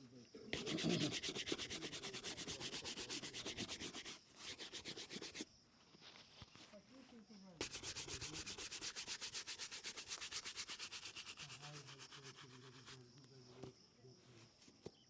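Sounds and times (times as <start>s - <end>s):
shoe being buffed: 0.6s - 5.5s, 7.6s - 13.0s.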